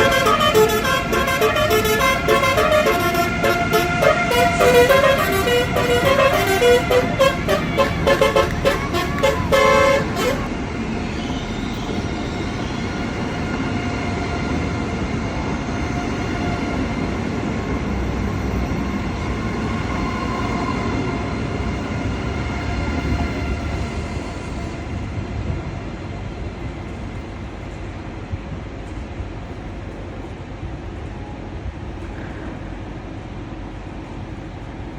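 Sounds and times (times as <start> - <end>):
tram horn toots: 0.0 - 15.0
tram rolling rumble: 0.0 - 34.9.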